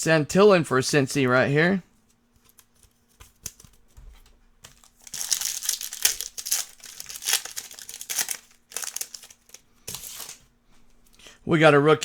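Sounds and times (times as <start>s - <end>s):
foil wrapper crinkling: 2.4s - 10.5s.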